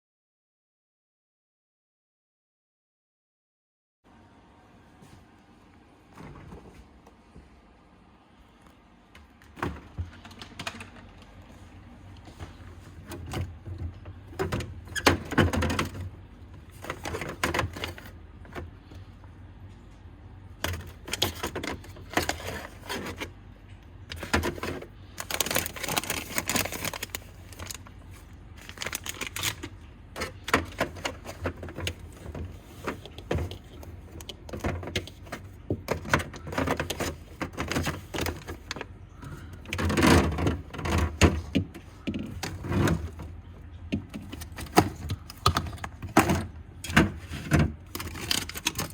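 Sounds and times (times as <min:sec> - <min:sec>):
low steady hum: 0:04.1 - 0:48.9
food packages clattering and rustling: 0:09.2 - 0:19.0, 0:20.6 - 0:48.9.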